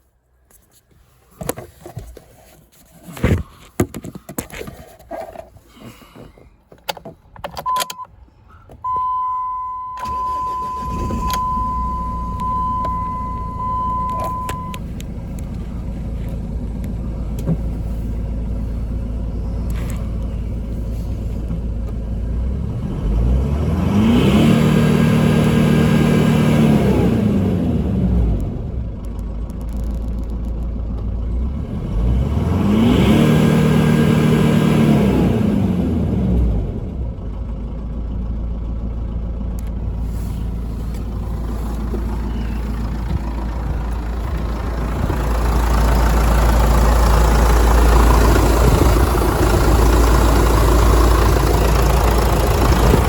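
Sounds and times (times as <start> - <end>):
diesel engine idling: 8.1 - 53.0
beeping warning tone: 8.8 - 14.8
diesel engine revving: 9.1 - 53.0.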